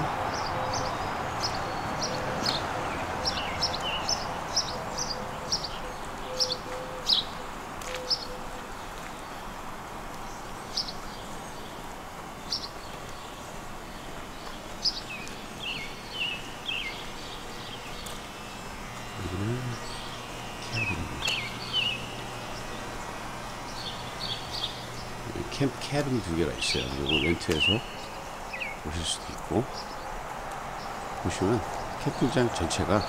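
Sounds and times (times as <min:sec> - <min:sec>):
songbirds chirping: 0:00.0 - 0:33.0
steady background hiss: 0:00.0 - 0:33.0.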